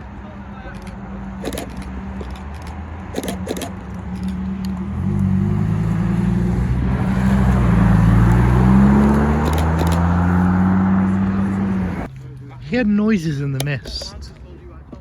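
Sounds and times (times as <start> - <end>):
car engine approaching: 0.0 - 12.7
sharp clicks: 0.7 - 4.8, 8.2 - 10.4.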